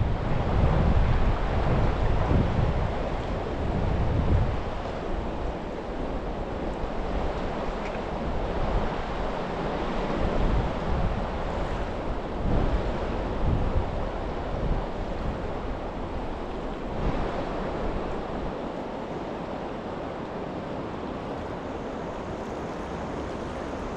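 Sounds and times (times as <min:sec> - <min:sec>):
wind buffeting microphone: 0:00.0 - 0:18.9
flowing river water: 0:00.0 - 0:23.9.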